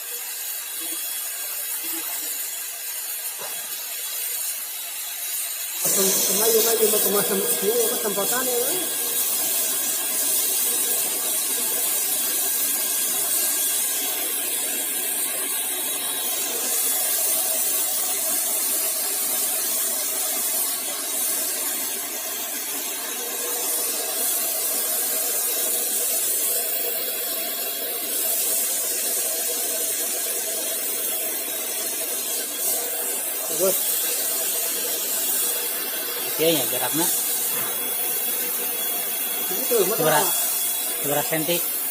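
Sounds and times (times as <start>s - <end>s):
paint spray hiss: 0.0s - 41.9s
paint sprayer motor whine: 5.8s - 12.5s, 31.6s - 41.9s.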